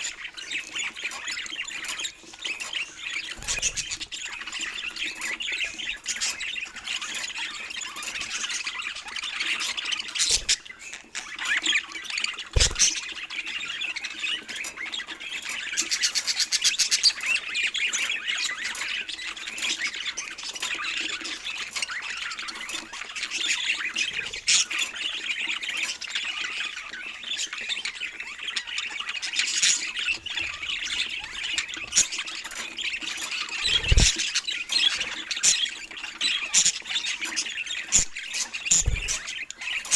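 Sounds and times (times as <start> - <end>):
budgies chattering and squawking: 0.0 - 39.9.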